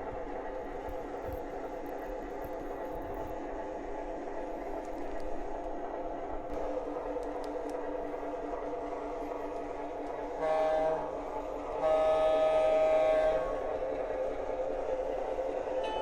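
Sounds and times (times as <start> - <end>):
model train running on track: 0.0 - 16.0
electronic train horn: 10.3 - 11.2, 11.8 - 13.8.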